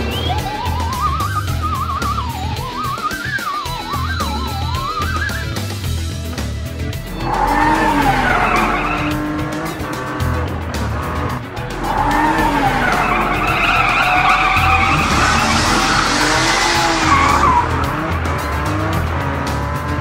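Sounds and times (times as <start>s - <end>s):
background music: 0.0s - 20.0s
race car engine revving: 0.0s - 20.0s
tyres squealing: 7.0s - 19.4s.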